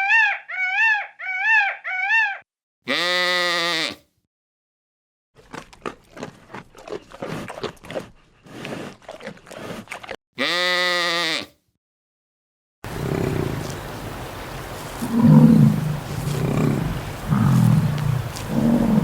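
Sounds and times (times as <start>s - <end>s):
farm animal long call: 0.0s - 4.0s, 9.5s - 11.5s, 12.9s - 19.0s
animal grunting: 12.9s - 19.0s.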